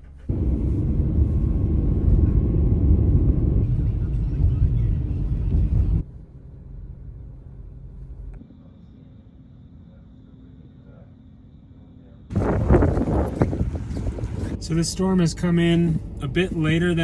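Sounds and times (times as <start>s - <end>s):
car road and wind rumble: 0.0s - 8.4s, 12.3s - 17.0s.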